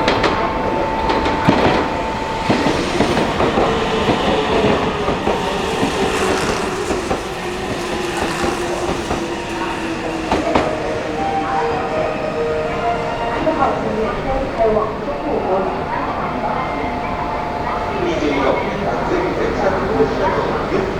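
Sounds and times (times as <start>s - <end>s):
train wheel clatter: 0.0s - 12.1s
train motor whine: 0.1s - 12.6s.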